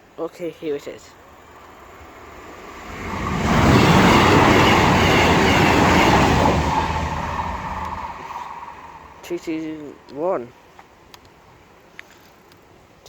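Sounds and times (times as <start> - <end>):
diesel train passing: 1.2 - 10.4.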